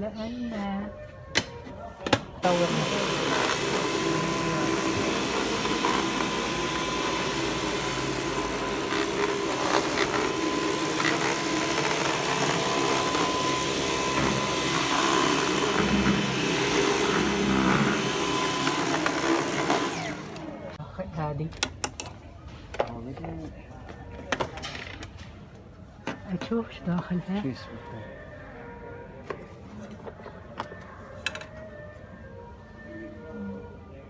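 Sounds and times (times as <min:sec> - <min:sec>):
vacuum cleaner running: 0:02.4 - 0:20.8.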